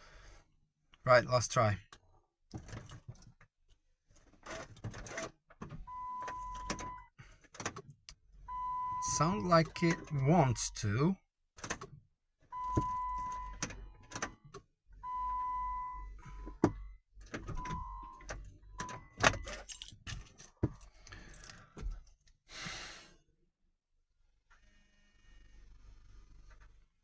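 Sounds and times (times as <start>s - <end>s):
ignition clicks and clunks: 4.4s - 10.9s, 11.6s - 22.1s.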